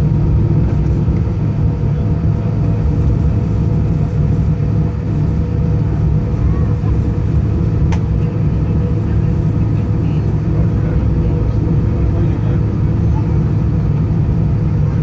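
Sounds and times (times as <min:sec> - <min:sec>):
airliner cabin engine drone: 0:00.0 - 0:15.0.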